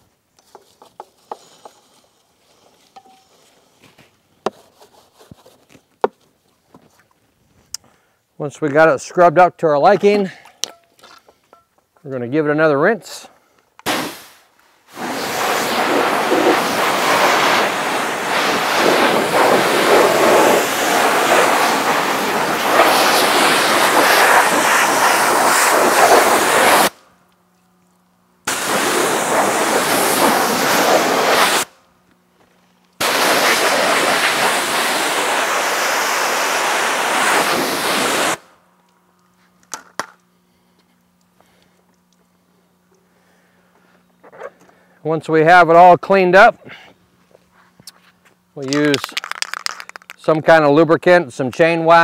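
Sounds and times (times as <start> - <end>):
pressure washer spraying water: 13.9 - 26.9, 28.5 - 31.7, 33.0 - 38.5.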